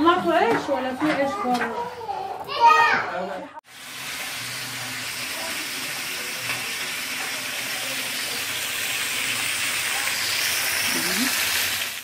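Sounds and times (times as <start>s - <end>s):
chicken frying in oil: 3.6s - 12.0s.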